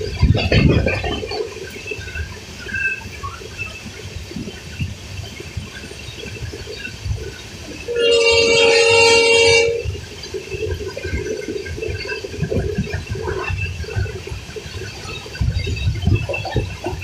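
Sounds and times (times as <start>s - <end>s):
continuous rumbling: 0.0s - 17.0s
train horn blast: 7.9s - 10.0s.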